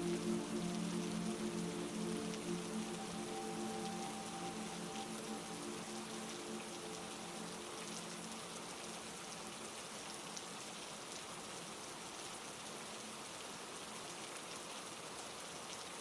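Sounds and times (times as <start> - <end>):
low musical drone: 0.0 - 9.6
heavy rain: 0.0 - 16.0.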